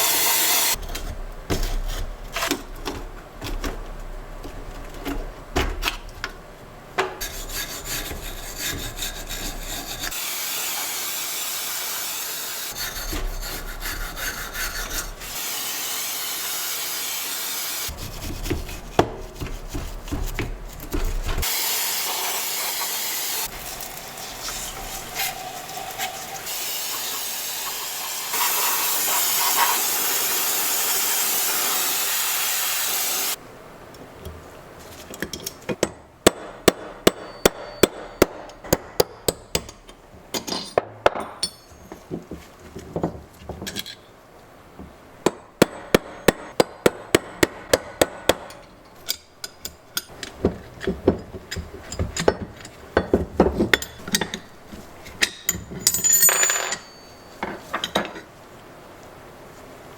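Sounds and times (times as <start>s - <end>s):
loud steady hiss: 0.0s - 0.8s, 7.2s - 13.6s, 14.2s - 18.0s, 21.4s - 33.6s
hammer tapping on metal: 35.7s - 39.8s, 45.3s - 50.2s.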